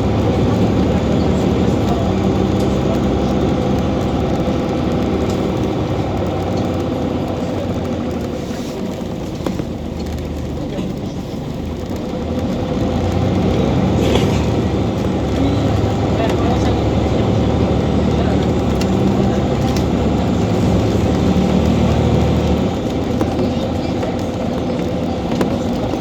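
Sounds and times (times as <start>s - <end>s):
bus diesel engine drone: 0.0s - 26.0s.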